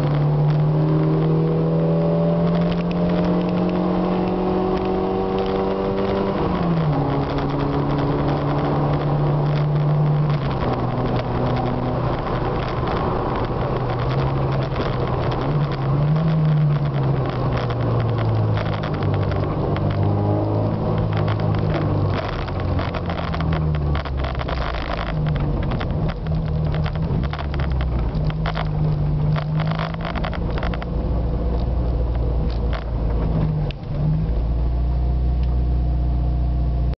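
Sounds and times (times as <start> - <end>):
crackling and rattles: 0.0 - 34.5
car engine in slow traffic: 0.0 - 37.0.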